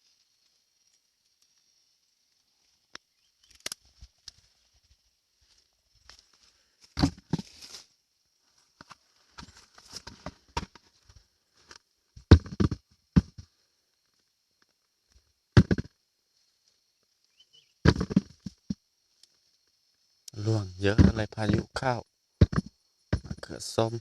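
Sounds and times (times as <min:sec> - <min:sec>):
faint high-pitched hiss: 0:00.0 - 0:24.0
rustling and crunching among plants: 0:02.4 - 0:11.8.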